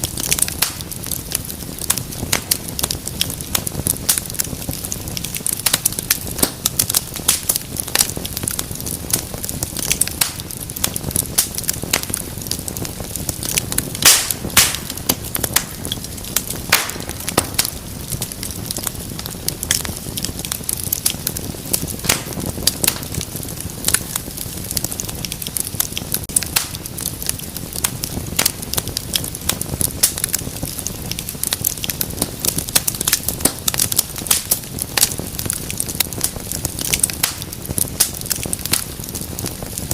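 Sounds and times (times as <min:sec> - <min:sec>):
low rumble of flame: 0:00.0 - 0:39.9
wood fire crackling and popping: 0:00.0 - 0:39.9.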